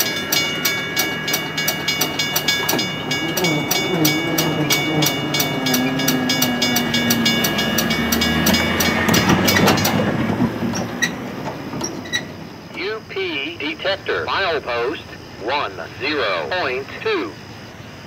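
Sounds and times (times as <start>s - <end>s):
train wheels clicking: 0.0s - 12.8s
train rumble: 0.0s - 18.0s
low tone sliding down: 2.6s - 11.2s.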